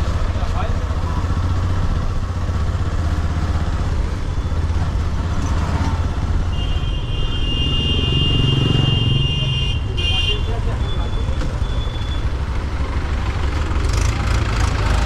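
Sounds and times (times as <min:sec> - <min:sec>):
motorcycle engine rumble: 0:00.0 - 0:15.0
road noise: 0:00.0 - 0:15.0.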